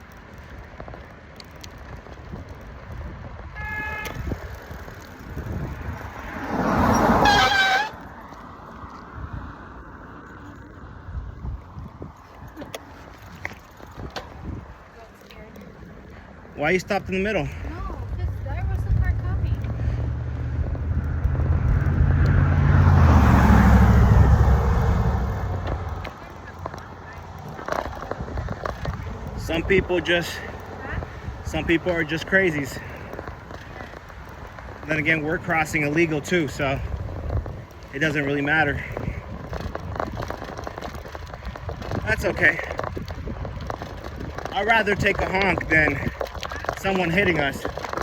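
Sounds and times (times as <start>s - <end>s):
car horn honking: 3.6s - 4.4s, 6.7s - 8.1s
car passing close by: 5.3s - 11.0s, 17.7s - 26.8s.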